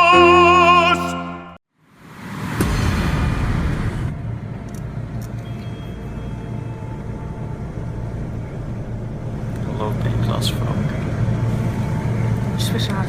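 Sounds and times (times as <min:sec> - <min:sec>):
subway train rumble: 0:03.0 - 0:13.0.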